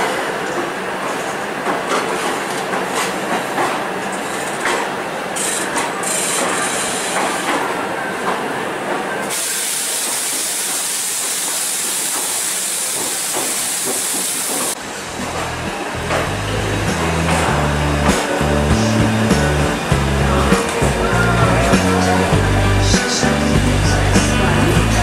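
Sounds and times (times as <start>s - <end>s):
train wheels rumbling and clicking: 0.0s - 25.0s
steady loud hiss: 9.3s - 25.0s.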